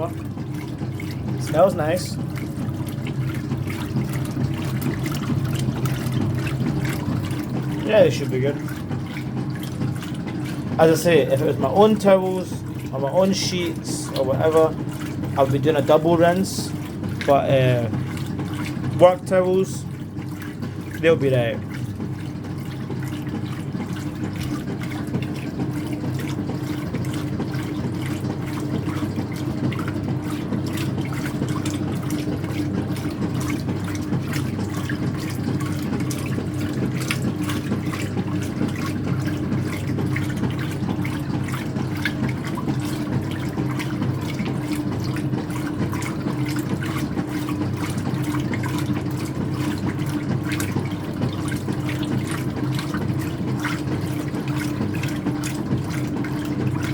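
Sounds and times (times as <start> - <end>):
washer motor hum: 0.0 - 56.9
water sloshing in washer: 0.0 - 56.9.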